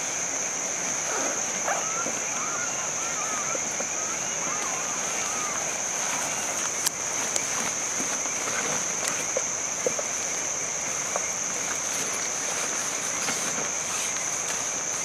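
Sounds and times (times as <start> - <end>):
high-pitched insect chorus: 0.0 - 15.0
steady hiss: 0.0 - 15.0.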